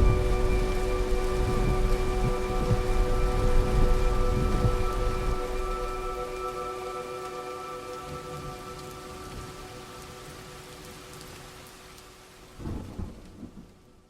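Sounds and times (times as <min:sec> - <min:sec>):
held music tones: 0:00.0 - 0:10.1
heavy rain: 0:00.0 - 0:14.0.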